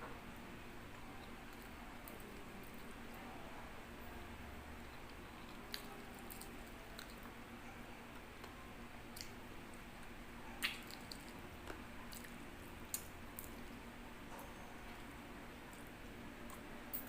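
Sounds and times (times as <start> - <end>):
chewing with wet mouth sounds: 4.8 - 7.4, 8.1 - 13.8
mouth clicks and smacks: 10.6 - 13.6.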